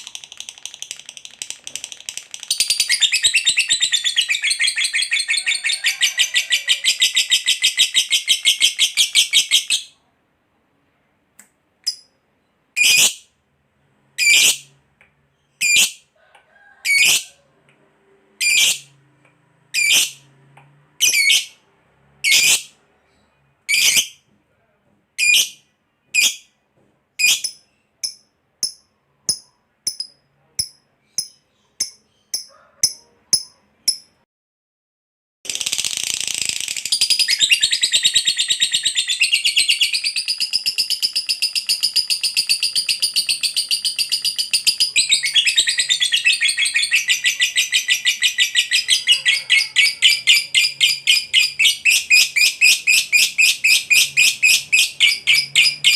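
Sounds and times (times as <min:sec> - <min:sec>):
lovebird chattering trill: 0:35.6 - 0:55.9.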